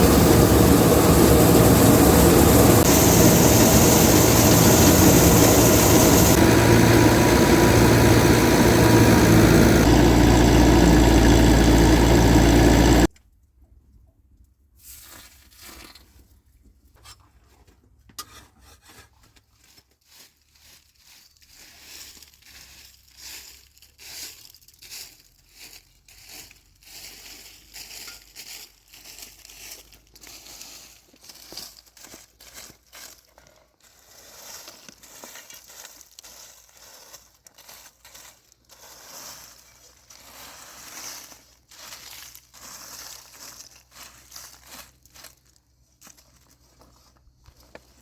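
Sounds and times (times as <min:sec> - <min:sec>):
rustling and crunching: 0:19.2 - 0:48.0.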